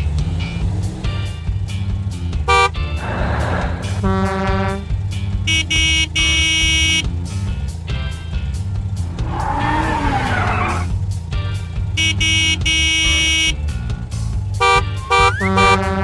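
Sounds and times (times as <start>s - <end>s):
background music with steady beat: 0.0s - 16.0s
cartoon horns honking: 2.5s - 3.1s, 3.8s - 7.2s, 11.9s - 13.8s, 14.6s - 16.0s.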